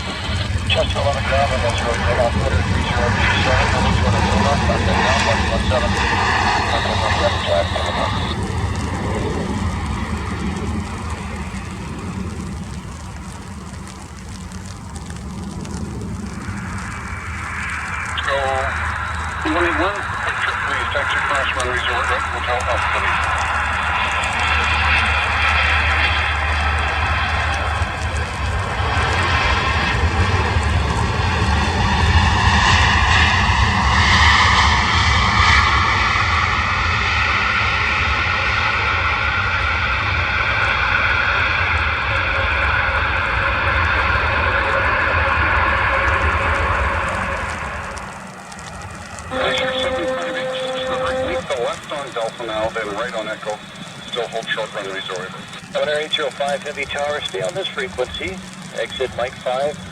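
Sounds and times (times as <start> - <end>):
drop ticks: 0.0 - 33.5, 45.9 - 59.9
rain falling: 0.0 - 59.9
steady low rumble: 0.0 - 59.9.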